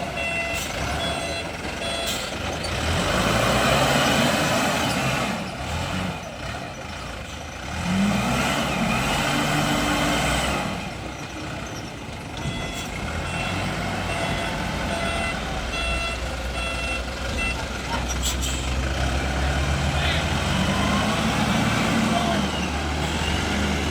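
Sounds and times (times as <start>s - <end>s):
reversing alarm beeping: 0.0s - 2.4s, 12.4s - 17.7s, 22.0s - 23.9s
diesel engine revving: 0.0s - 23.9s.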